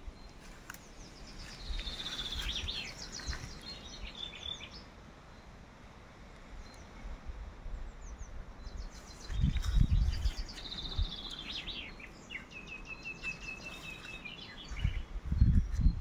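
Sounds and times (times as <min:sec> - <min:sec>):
songbird singing fast chirps: 0:00.0 - 0:05.6, 0:06.5 - 0:16.0
low microphone rumble: 0:07.4 - 0:12.5.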